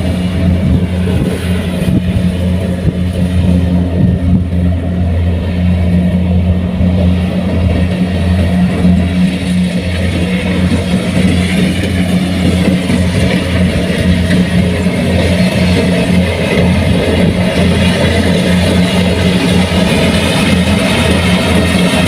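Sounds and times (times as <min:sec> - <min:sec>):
combine harvester engine droning: 0:00.0 - 0:22.0.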